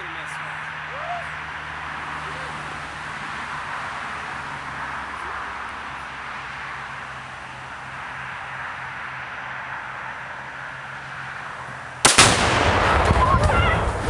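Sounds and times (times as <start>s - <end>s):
rolling rumble of echo: 5.4s - 14.0s
explosion blast: 12.1s - 14.0s.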